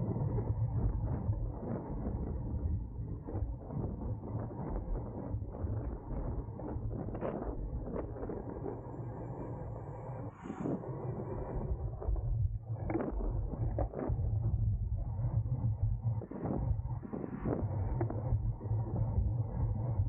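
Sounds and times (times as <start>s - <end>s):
rumble of wind and tyres: 0.0s - 20.0s.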